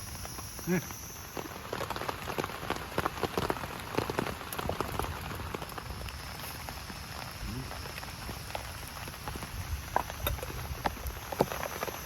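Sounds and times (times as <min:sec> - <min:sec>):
heavy rain hiss: 0:00.0 - 0:12.0
raindrops striking a surface: 0:00.0 - 0:12.0.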